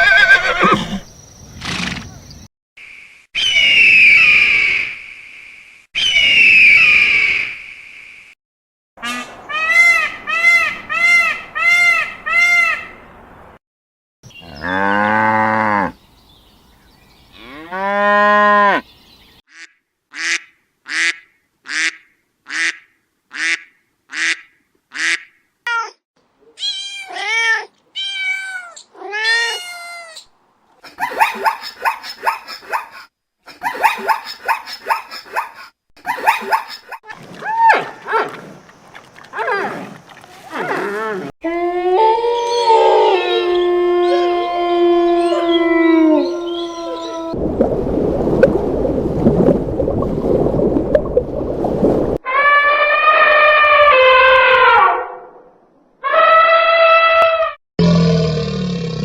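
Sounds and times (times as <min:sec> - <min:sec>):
horse neighing: 0:00.0 - 0:01.0, 0:40.7 - 0:47.4
animal calls: 0:39.4 - 0:47.4.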